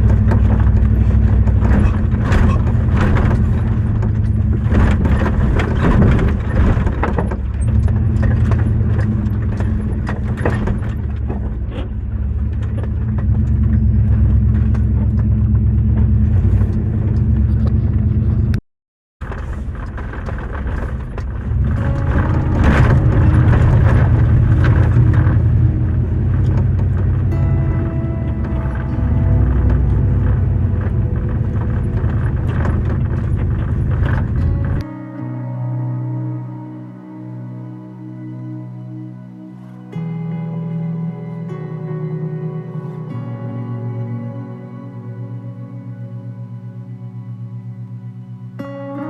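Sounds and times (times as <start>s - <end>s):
knocks and rattles: 0.0s - 18.5s, 19.2s - 34.9s
vehicle engine running: 0.0s - 18.6s, 19.2s - 49.0s.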